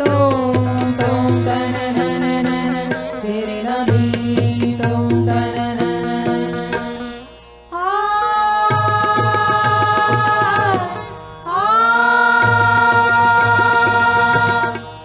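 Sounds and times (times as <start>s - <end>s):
person singing long notes: 0.0s - 14.8s
tabla drum strokes: 8.7s - 14.9s.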